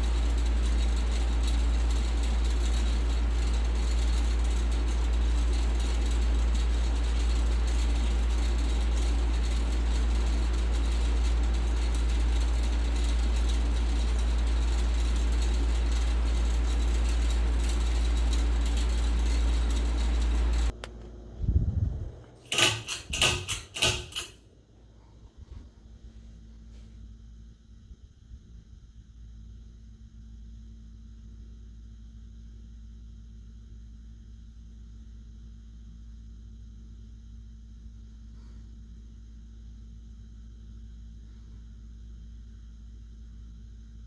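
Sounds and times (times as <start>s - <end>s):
ceiling fan humming: 0.0s - 29.2s.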